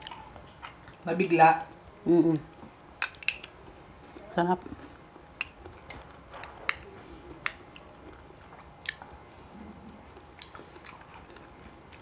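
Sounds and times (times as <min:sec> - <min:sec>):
people chewing: 0:03.2 - 0:12.0.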